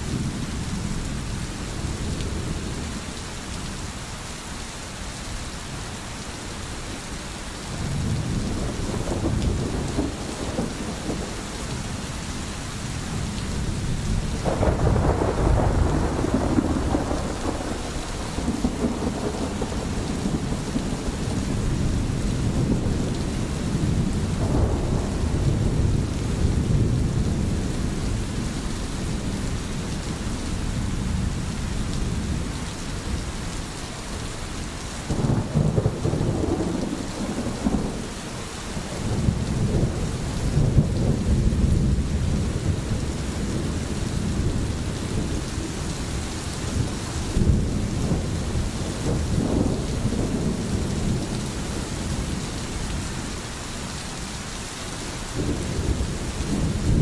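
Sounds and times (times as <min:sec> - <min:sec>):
steady rain falling: 0:00.0 - 0:57.0
thunder rumbling: 0:07.8 - 0:12.0, 0:13.0 - 0:32.6, 0:35.1 - 0:38.1, 0:38.8 - 0:53.0, 0:55.4 - 0:57.0.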